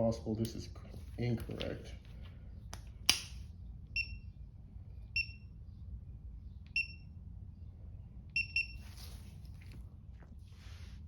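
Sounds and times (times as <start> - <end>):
torque wrench beeps: 8.4 - 8.8.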